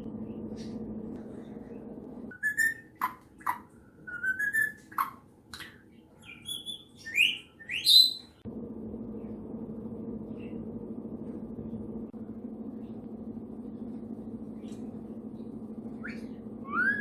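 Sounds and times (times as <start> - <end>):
steady low hum: 0.0 - 4.1, 8.3 - 17.0
bird chirping and whistling: 2.3 - 5.2, 6.2 - 8.4, 15.9 - 17.0.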